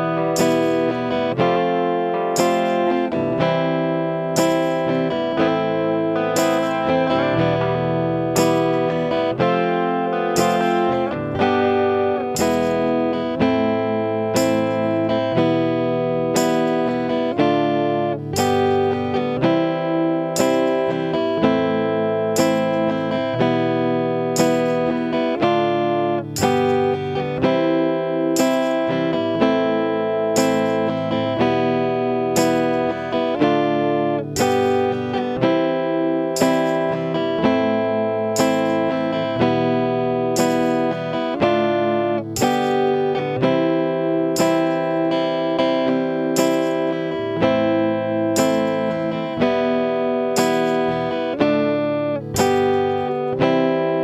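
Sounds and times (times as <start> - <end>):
guitar strumming chords: 0.0 - 54.0.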